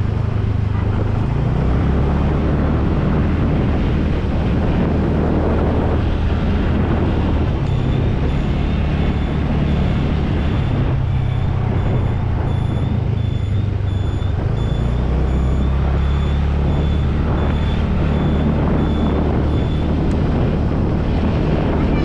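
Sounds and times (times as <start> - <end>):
motorcycle engine running: 0.0 - 22.0
short high electronic beeps: 7.7 - 19.9.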